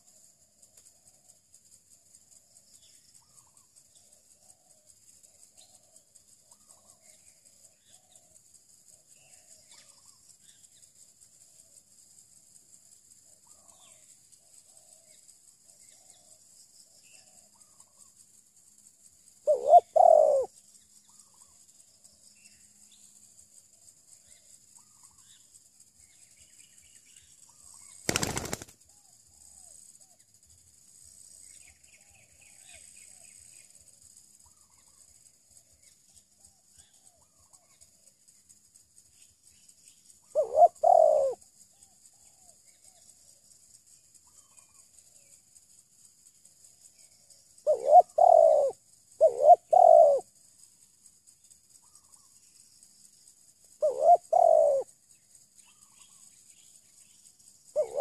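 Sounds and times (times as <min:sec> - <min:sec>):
high insect hiss: 0:00.0 - 0:58.0
wing flapping: 0:28.0 - 0:28.8.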